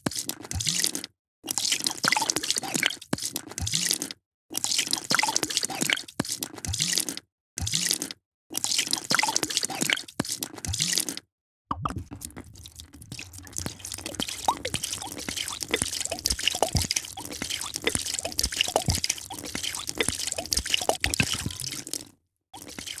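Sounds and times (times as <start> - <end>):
liquid pouring and splashing: 11.8 - 23.0.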